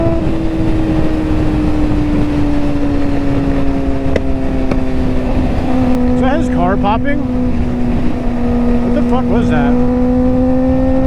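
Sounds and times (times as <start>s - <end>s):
engine droning: 0.0s - 11.0s
heavy wind: 0.0s - 11.0s
road rumble: 0.0s - 11.0s
sharp exhaust pops: 4.0s - 6.0s.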